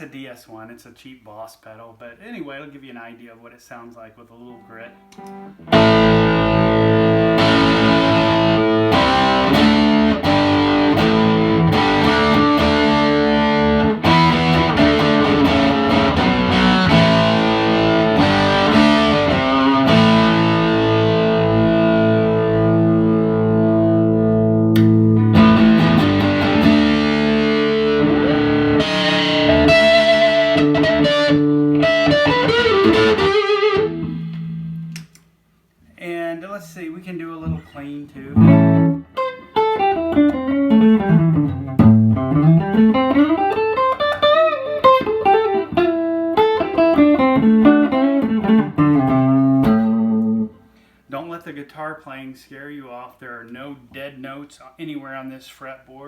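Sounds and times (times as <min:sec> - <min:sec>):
distorted electric guitar chords: 0:04.9 - 0:35.1, 0:38.3 - 0:50.6.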